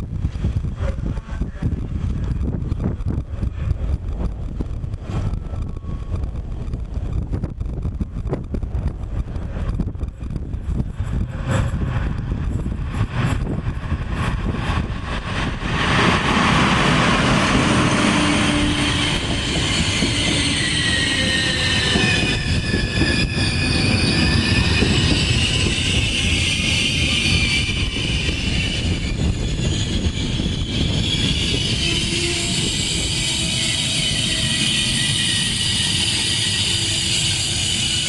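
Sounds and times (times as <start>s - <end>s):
high wavering brake squeal: 15.2s - 38.0s.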